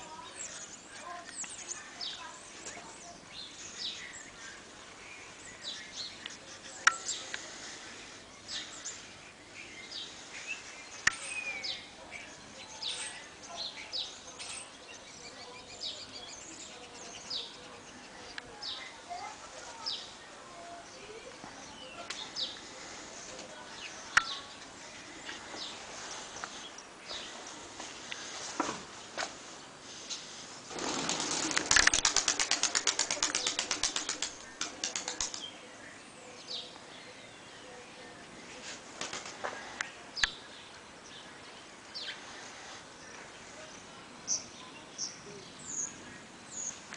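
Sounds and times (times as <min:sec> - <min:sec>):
faint steady hiss: 0:00.0 - 0:46.9
small birds chirping: 0:00.0 - 0:46.9
pigeon wings clapping: 0:30.7 - 0:35.5, 0:39.0 - 0:39.4.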